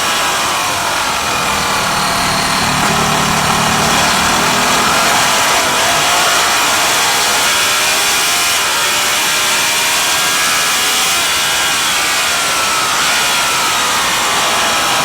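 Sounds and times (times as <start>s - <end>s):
racing motorcycle engine revving: 0.0s - 8.2s.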